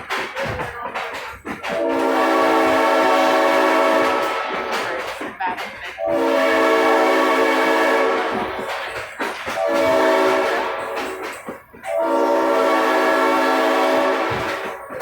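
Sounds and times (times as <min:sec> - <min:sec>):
train running: 0:00.0 - 0:15.0
locomotive horn blasts: 0:01.6 - 0:05.1, 0:06.0 - 0:08.7, 0:09.5 - 0:11.2, 0:11.8 - 0:14.9.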